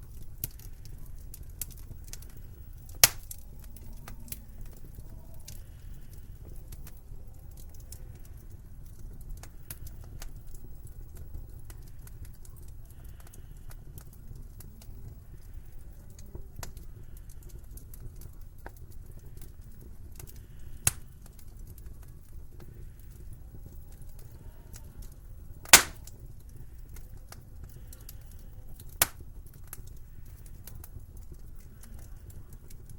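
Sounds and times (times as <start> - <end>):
low fire rumble: 0.0 - 32.9
wood fire crackling: 0.0 - 32.9
loud sharp pop: 3.0 - 3.2, 25.7 - 26.0.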